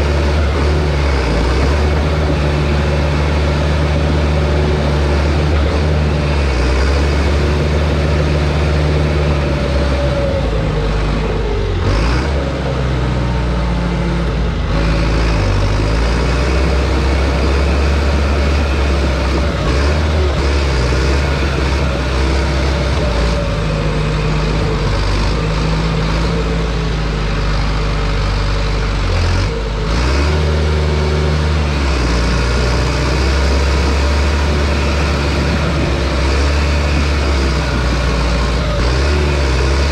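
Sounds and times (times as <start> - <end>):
bulldozer diesel engine under load: 0.0 - 39.9.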